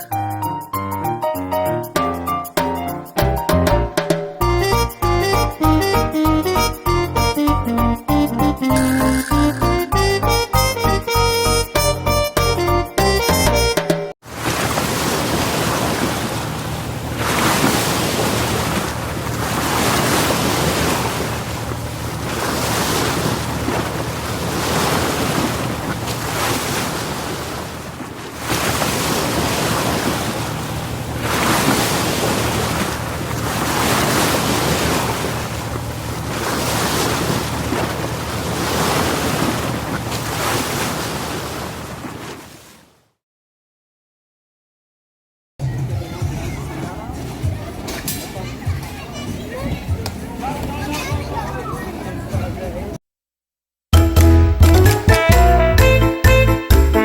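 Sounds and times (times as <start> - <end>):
sea waves washing onto shore: 14.2 - 42.9.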